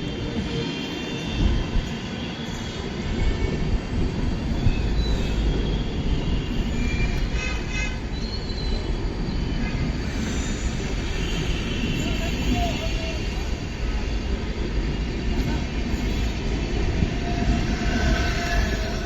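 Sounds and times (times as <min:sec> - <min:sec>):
train wheels rumbling on track: 0:00.0 - 0:19.0
high wheel squeals: 0:15.9 - 0:19.0.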